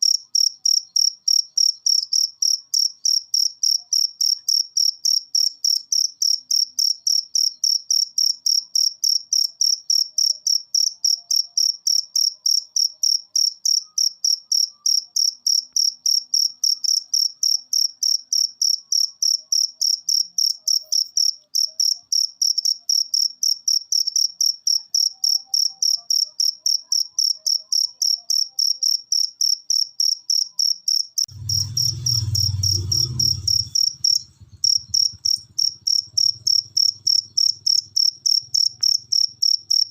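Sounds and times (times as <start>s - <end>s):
cricket chirping: 0.0s - 39.9s
low rumble: 31.3s - 37.7s.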